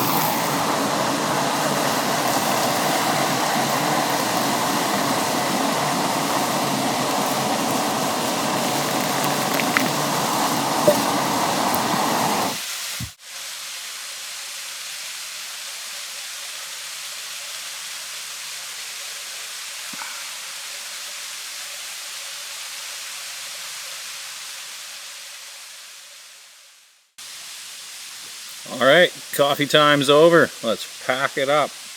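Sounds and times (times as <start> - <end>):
gas stove burner roaring hiss: 0.0 - 14.0, 27.2 - 31.9
hiss of rushing water: 0.0 - 31.9.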